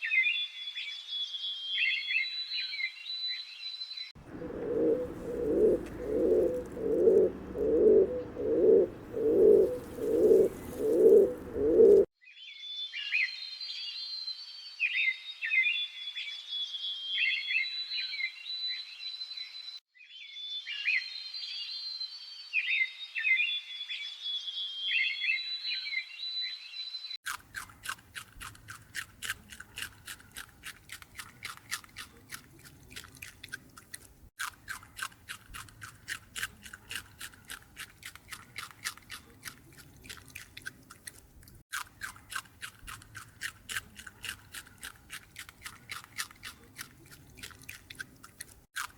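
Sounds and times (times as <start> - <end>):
animal chewing crunchily: 4.2 - 12.1, 27.2 - 48.9
animal chirping calls: 4.3 - 12.1.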